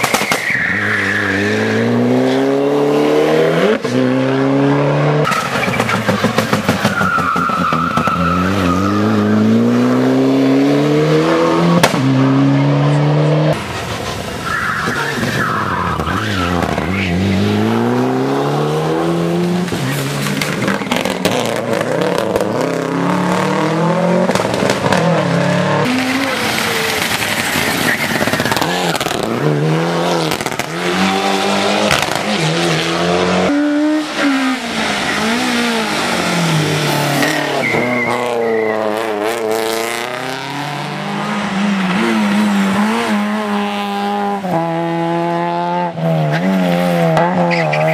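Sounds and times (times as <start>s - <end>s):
tyre squeal: 0.0s - 2.0s, 5.2s - 10.1s, 37.2s - 39.5s, 47.4s - 47.9s
rally car engine revving: 0.0s - 14.2s, 14.9s - 47.9s.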